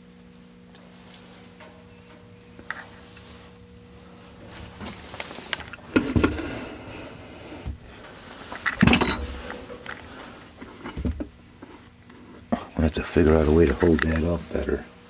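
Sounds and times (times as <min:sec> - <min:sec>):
metallic clattering of objects: 0:07.9 - 0:11.3.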